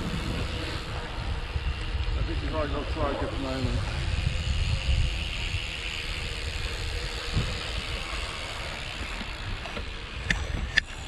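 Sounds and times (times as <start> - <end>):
bike tyres rolling on gravel: 0.0 - 11.0
wind buffeting microphone: 0.0 - 11.0.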